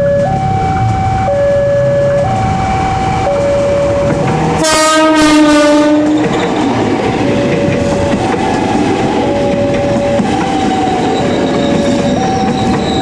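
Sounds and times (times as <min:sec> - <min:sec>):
train cars and wheels rumbling: 0:00.0 - 0:13.0
two-tone level-crossing alarm: 0:00.0 - 0:13.0
train horn blast: 0:04.6 - 0:06.3.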